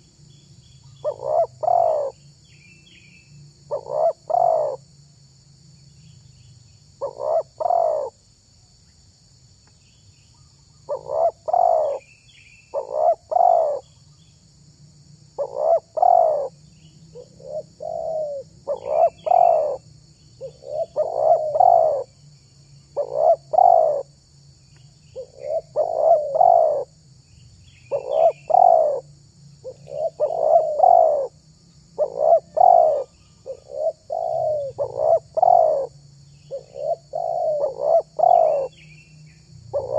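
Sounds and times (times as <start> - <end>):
dove cooing: 1.0 - 2.2, 3.7 - 4.8, 7.0 - 8.2, 10.9 - 12.1, 12.7 - 13.9, 15.4 - 19.8, 20.4 - 22.1, 23.0 - 24.1, 25.2 - 26.9, 27.9 - 31.4, 32.0 - 38.8.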